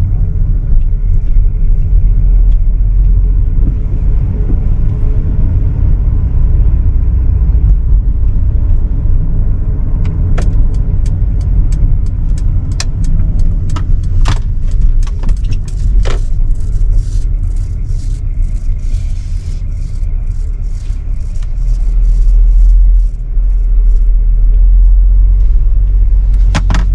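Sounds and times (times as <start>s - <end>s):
car engine rumbling: 0.0s - 26.9s
sharp clicks: 10.0s - 17.0s.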